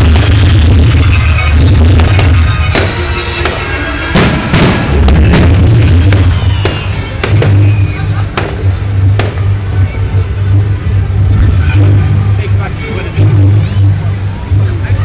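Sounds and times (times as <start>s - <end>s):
fireworks bangs: 0.0s - 9.6s
loud music with heavy bass: 0.0s - 15.0s.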